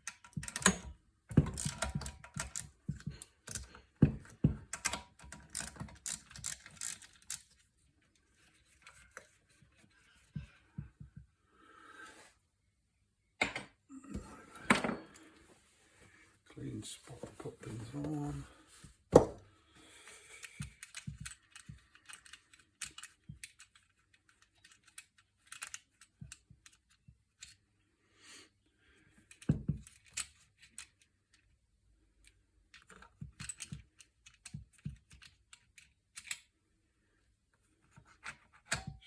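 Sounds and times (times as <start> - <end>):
hand tools clicking and tapping: 0.0 - 7.4.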